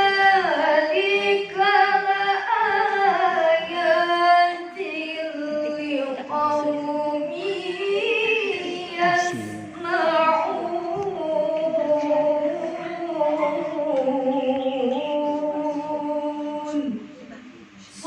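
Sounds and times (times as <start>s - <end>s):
melodic recitation by one voice: 0.0s - 17.2s.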